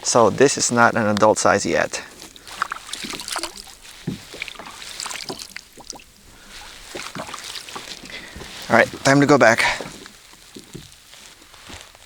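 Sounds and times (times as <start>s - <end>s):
water dripping: 0.6s - 11.8s
knocks and clicks against kayak: 0.9s - 11.8s.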